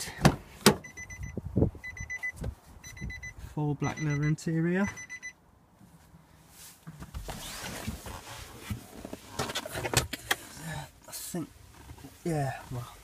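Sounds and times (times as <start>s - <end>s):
rustling and shuffling: 5.7s - 13.0s.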